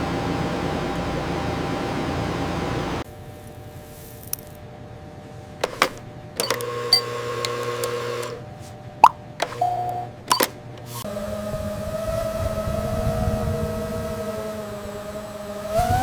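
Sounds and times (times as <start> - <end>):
low machinery hum: 0.0 - 16.0
motor whirring: 5.6 - 8.4, 9.4 - 16.0
sharp mechanical clicks: 5.6 - 8.4, 9.0 - 11.1.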